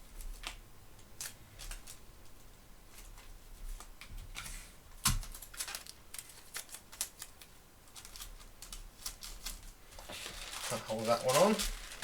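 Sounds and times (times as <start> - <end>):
thin pages rustling: 7.9 - 12.0.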